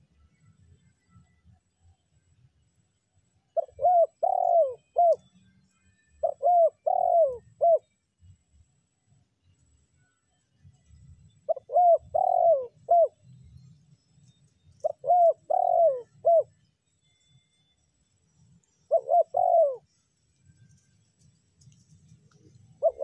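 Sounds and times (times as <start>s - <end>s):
dove cooing: 3.6s - 5.2s, 6.2s - 7.9s, 11.5s - 13.2s, 14.8s - 16.5s, 18.9s - 19.9s, 22.6s - 23.0s.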